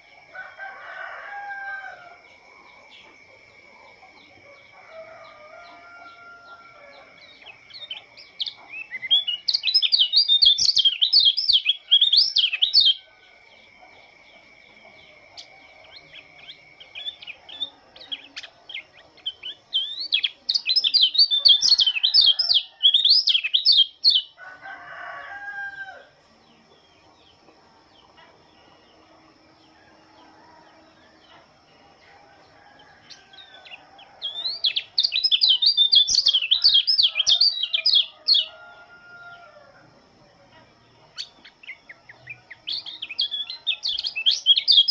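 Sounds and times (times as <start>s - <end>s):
rooster crowing: 0.1s - 7.4s, 20.9s - 23.5s, 24.1s - 26.2s, 29.2s - 40.0s
bird warbling song: 5.3s - 24.4s, 32.8s - 38.6s, 40.9s - 44.9s.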